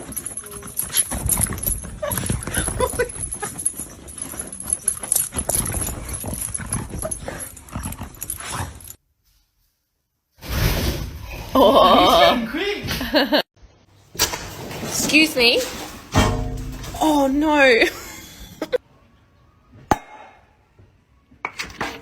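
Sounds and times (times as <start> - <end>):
knocking and scuffling: 14.0 - 18.8, 21.4 - 22.0.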